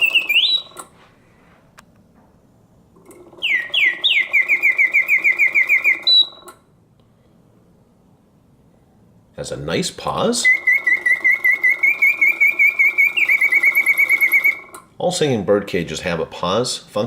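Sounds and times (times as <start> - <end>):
mechanical bird whistling: 0.0 - 0.9, 3.2 - 6.6, 10.2 - 14.8
clockwork movement whirring: 10.4 - 14.8.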